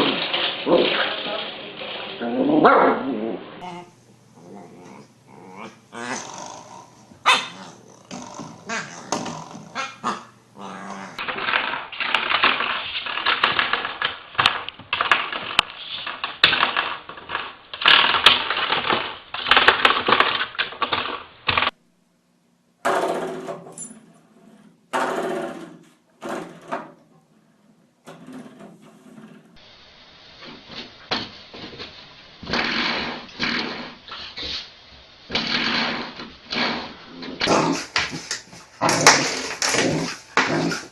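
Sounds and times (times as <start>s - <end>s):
puppies growling and yipping: 2.2s - 11.2s.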